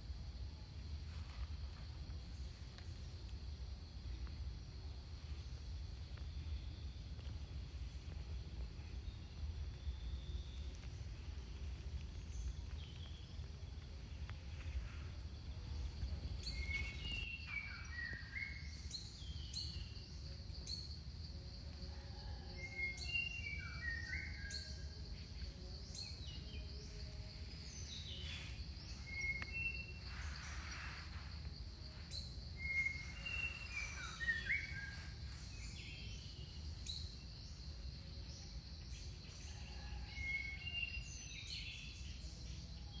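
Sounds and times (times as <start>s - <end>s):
birds whistling and chirping: 16.4s - 19.9s, 28.2s - 31.0s, 32.1s - 35.8s.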